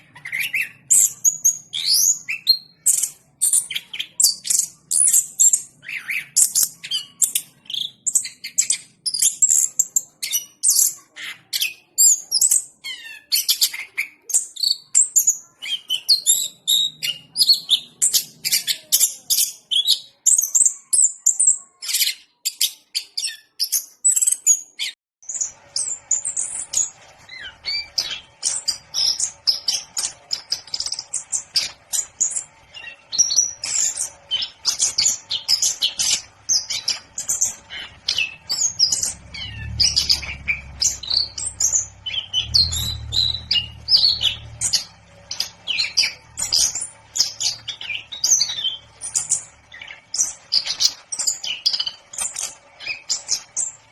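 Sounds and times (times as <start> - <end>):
thrush singing trills: 25.2 - 53.9.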